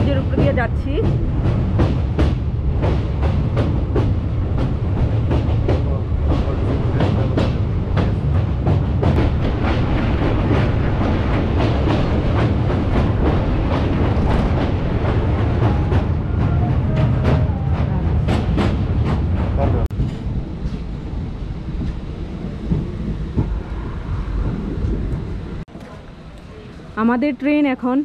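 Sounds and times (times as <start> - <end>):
clickety-clack wheel strikes: 0.0 - 20.9
train wheels rumbling on track: 0.0 - 28.0.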